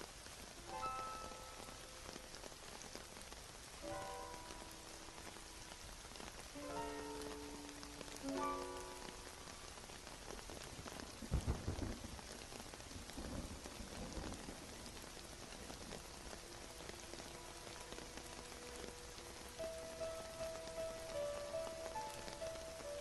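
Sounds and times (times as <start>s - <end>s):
steady rainfall: 0.0s - 23.0s
low rumble of thunder: 10.6s - 17.0s
soft held music notes: 14.4s - 23.0s.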